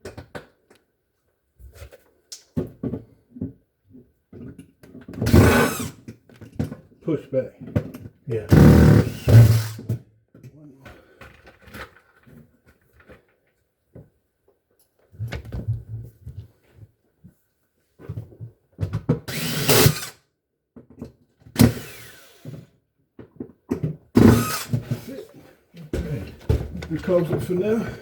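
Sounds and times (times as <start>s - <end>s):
power drill driving screw: 5.2s - 6.1s, 8.5s - 9.9s, 19.3s - 20.2s, 21.6s - 22.7s, 24.2s - 25.0s.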